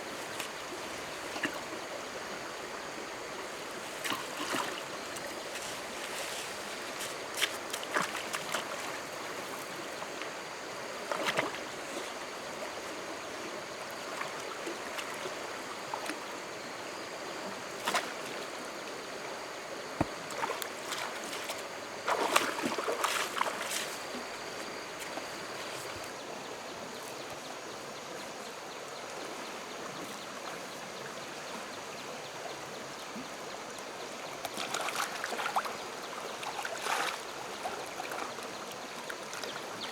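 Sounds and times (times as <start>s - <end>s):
stream water rushing: 0.0s - 26.9s
sharp knocks or splashes: 20.0s - 23.9s.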